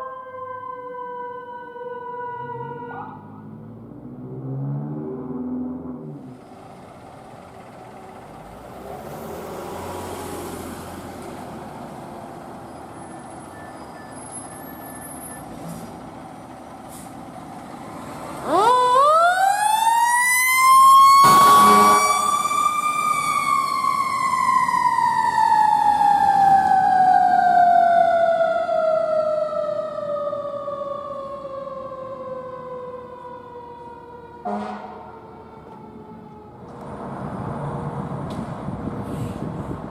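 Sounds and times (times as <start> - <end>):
emergency vehicle siren: 0.0 - 39.8
traffic rumble: 0.2 - 39.9
loud horn blast: 21.2 - 22.5, 34.4 - 35.2.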